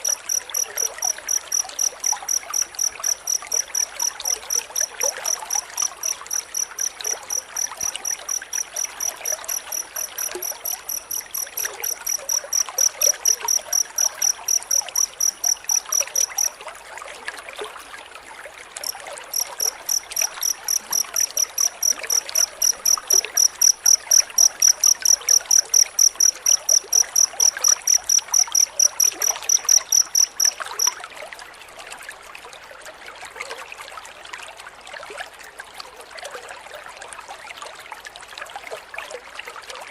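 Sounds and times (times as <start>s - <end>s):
cricket chirping: 0.0s - 16.6s, 18.8s - 31.0s
trickle of running water: 0.0s - 39.9s.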